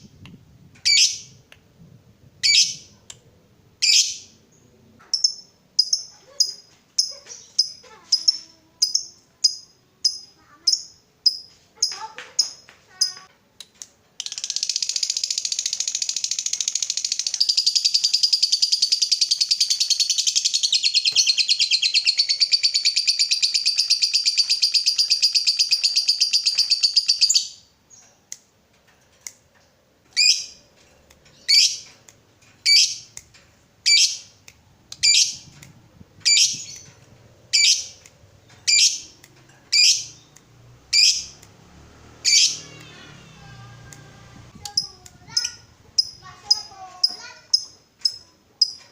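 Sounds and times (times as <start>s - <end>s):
bird sharp high calls: 42.2s - 42.8s.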